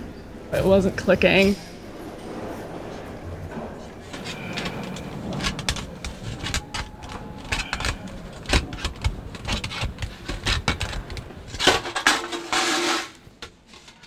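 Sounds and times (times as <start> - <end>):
hand tools clanking on sheet metal: 4.0 - 13.4.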